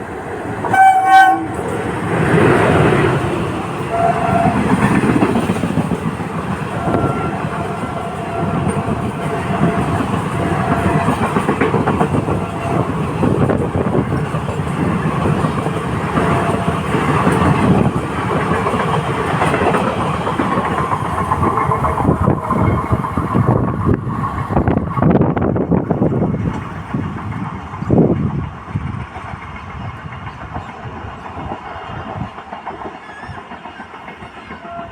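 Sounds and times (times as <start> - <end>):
train rumbling on rails: 0.0 - 34.9.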